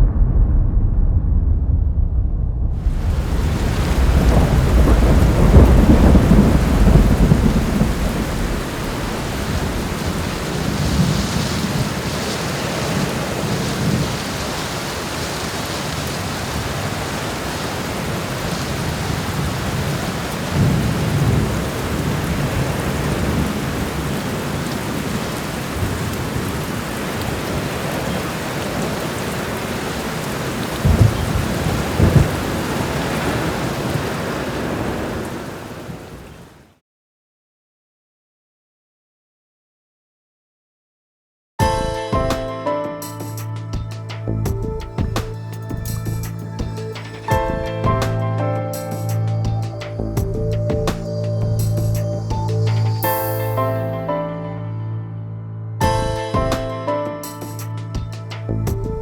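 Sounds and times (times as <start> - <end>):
short low thumps: 0.0 - 9.0, 43.6 - 48.4
rumble of thunder: 0.0 - 36.3, 49.2 - 53.1
steady rain: 2.7 - 36.8, 43.0 - 53.8, 57.2 - 59.0.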